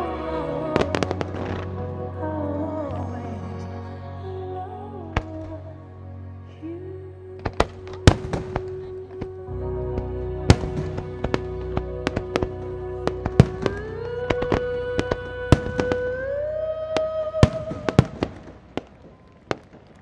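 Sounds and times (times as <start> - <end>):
music held chord: 0.0 - 18.8
fireworks bangs: 7.4 - 8.9, 10.5 - 16.3, 17.0 - 20.0.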